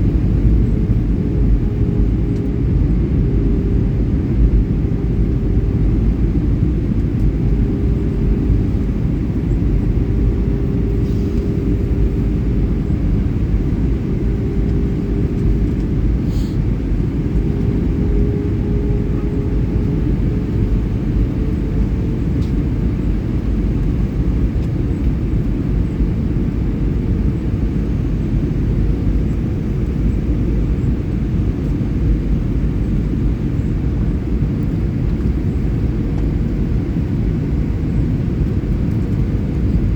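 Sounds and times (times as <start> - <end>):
humming tone: 0.0 - 23.2
jet engines rumbling: 0.0 - 39.9.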